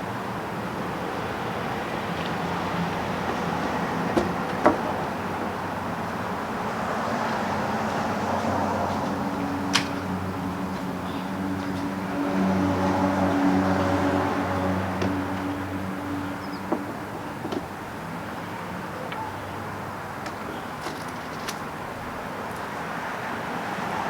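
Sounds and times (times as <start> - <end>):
sharp knocks: 4.0 - 5.6.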